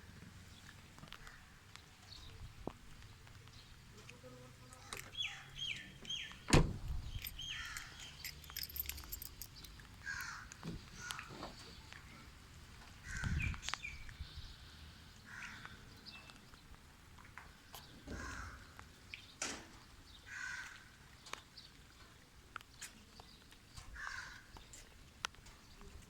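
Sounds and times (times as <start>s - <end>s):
birds chirping: 0.3s - 16.8s
sharp loud thump: 6.5s - 7.1s.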